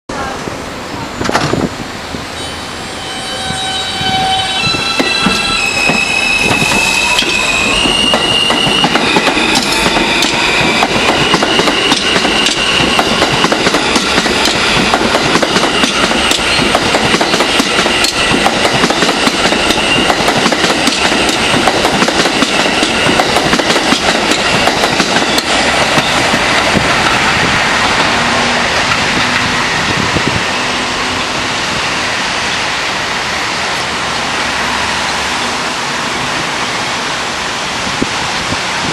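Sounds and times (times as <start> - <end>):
wheels clacking over rail joints: 5.0 - 30.1.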